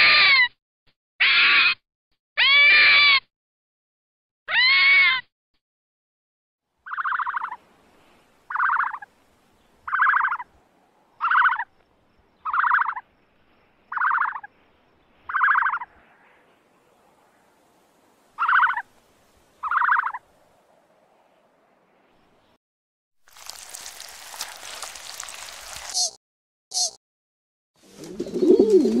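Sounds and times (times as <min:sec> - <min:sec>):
animal pulsed calls: 0:18.4 - 0:18.9, 0:19.6 - 0:20.2.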